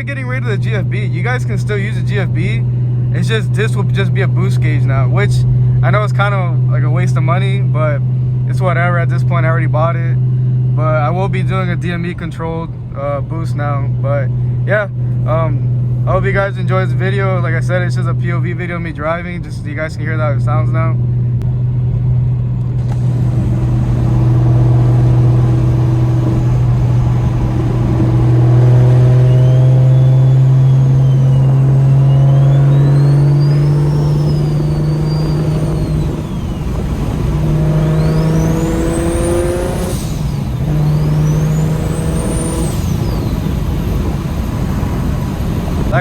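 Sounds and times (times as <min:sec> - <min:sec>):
raspy car exhaust note: 0:20.4 - 0:46.0
turbo whistle: 0:23.9 - 0:36.7, 0:37.5 - 0:43.6.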